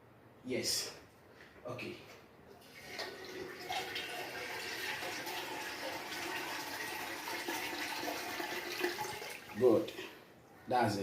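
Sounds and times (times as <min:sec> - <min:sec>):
water running in toilet: 0:02.6 - 0:10.1.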